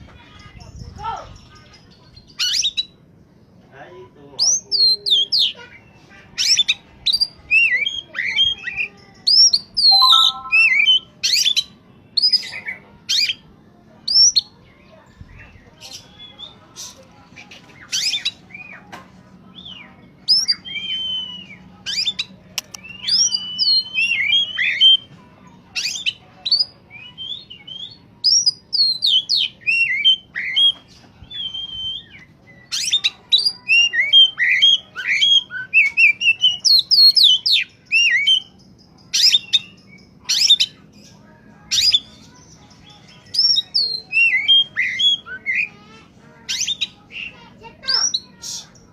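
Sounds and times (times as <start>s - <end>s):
songbird singing: 6.4s - 12.6s, 19.5s - 45.8s.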